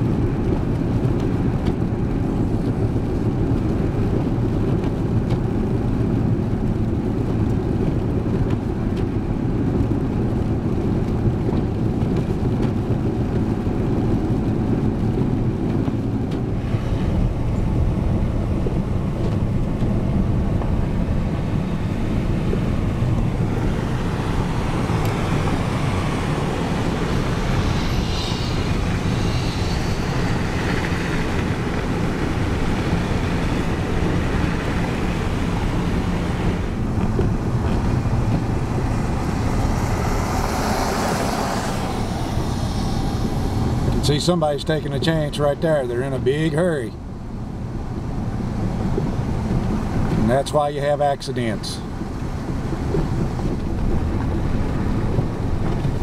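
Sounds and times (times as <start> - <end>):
engine and road rumble in cab: 0.0 - 56.0
high hiss: 24.4 - 32.7.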